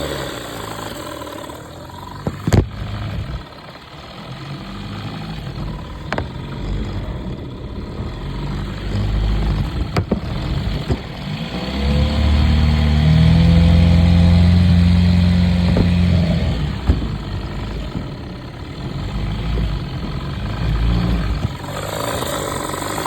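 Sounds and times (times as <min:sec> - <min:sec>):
outboard motor idling and revving: 0:00.0 - 0:23.0.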